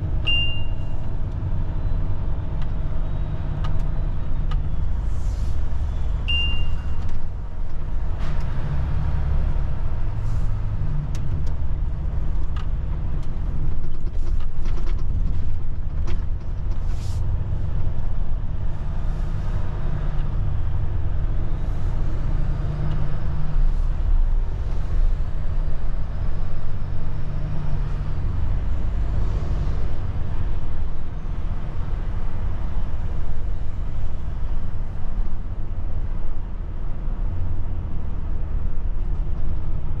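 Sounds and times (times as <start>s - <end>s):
diesel truck engine rumbling: 0.0s - 40.0s.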